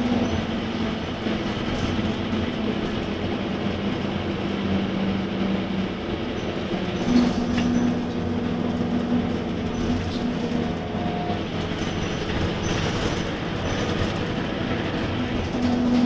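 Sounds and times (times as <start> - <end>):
bus diesel engine droning: 0.0 - 16.0.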